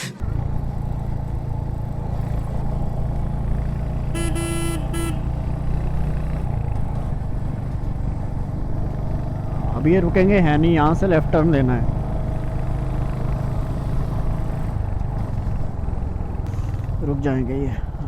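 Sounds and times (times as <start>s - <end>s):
motorcycle engine running: 0.2s - 18.0s
vehicle horn honking: 4.1s - 5.4s.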